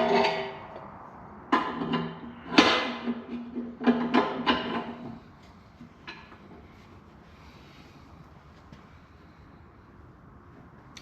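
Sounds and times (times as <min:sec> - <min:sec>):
metal clanking with ringing tone: 0:00.0 - 0:00.7.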